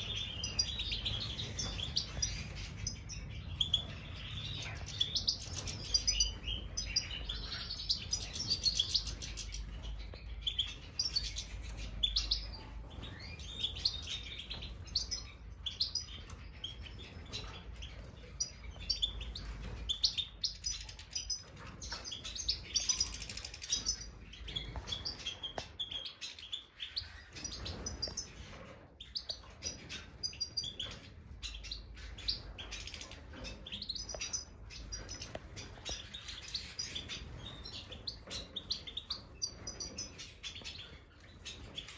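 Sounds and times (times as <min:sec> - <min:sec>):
goldfinches twittering: 0:00.0 - 0:28.4, 0:29.3 - 0:41.8.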